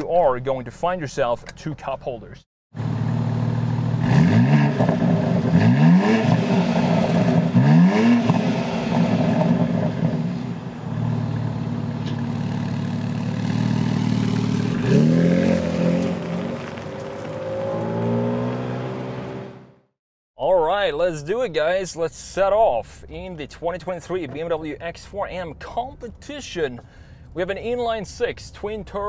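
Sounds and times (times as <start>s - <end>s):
car engine revving: 2.8s - 19.9s
car pulling away: 2.8s - 19.9s.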